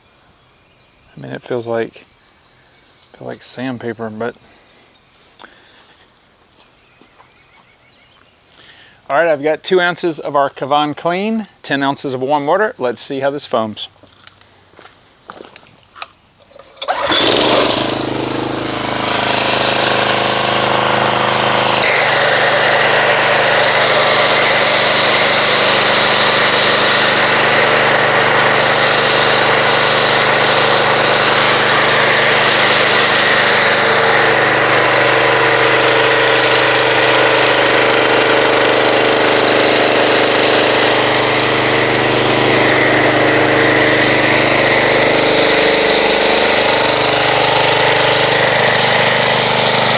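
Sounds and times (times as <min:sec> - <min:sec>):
pressure washer spraying: 0:16.8 - 0:49.9.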